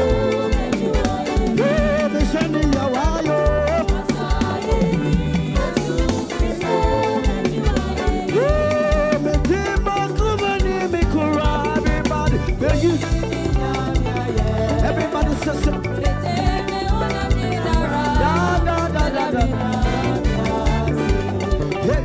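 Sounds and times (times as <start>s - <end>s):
drum and bass beat: 0.0s - 22.0s
person singing: 0.0s - 22.0s
upbeat praise music: 0.0s - 22.0s.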